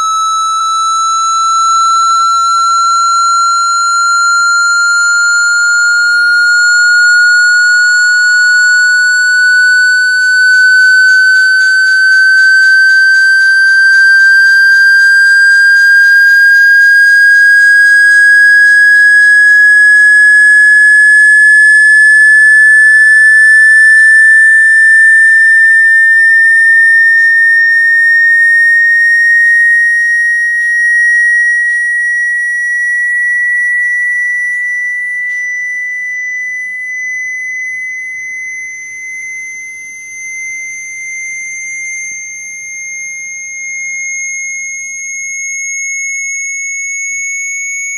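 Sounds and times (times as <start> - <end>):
electronic tone gliding upward: 0.0 - 29.8.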